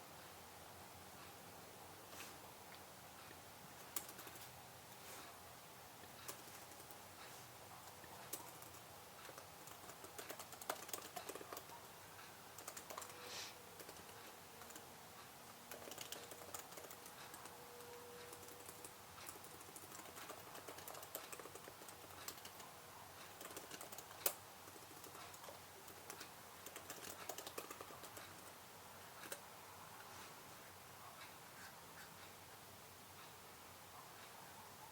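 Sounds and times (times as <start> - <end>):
typing on computer keyboard: 3.8 - 4.4, 6.2 - 7.0, 7.8 - 11.9, 12.5 - 14.9, 15.6 - 28.6, 29.2 - 29.4.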